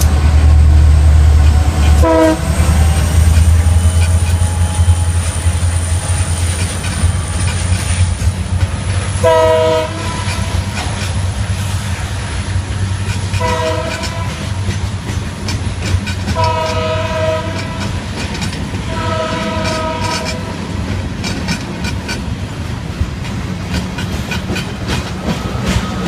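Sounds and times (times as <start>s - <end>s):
train rumble and wheel clatter: 0.0s - 26.0s
locomotive air horn blasts: 1.7s - 7.4s, 9.1s - 10.7s, 13.4s - 14.6s, 16.4s - 18.0s, 18.9s - 20.5s.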